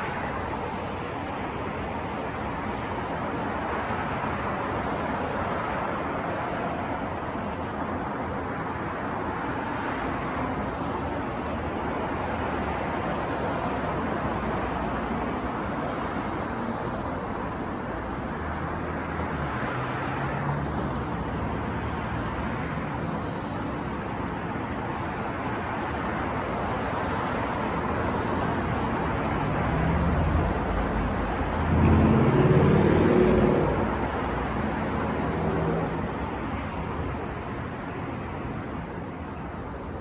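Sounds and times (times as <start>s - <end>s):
city traffic: 0.0s - 40.0s
heavy vehicle engine passing: 29.3s - 37.1s.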